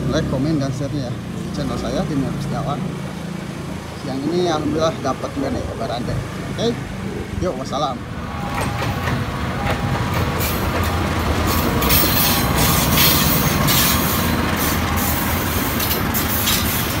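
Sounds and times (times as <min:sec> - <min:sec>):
diesel train rumbling past: 0:00.0 - 0:17.0
wheels clattering on rails: 0:08.2 - 0:17.0.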